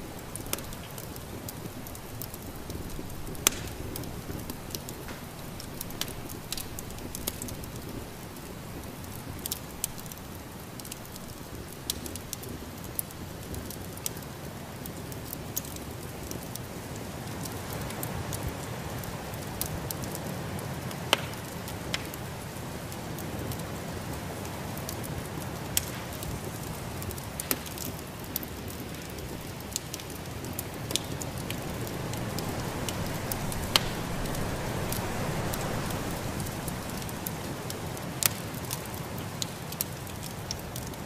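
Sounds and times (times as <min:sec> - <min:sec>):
wood fire crackling: 0:00.0 - 0:41.0
sharp fire pops: 0:00.2 - 0:14.2, 0:21.1 - 0:22.2, 0:25.7 - 0:41.0
snowstorm wind rushing: 0:31.3 - 0:38.0.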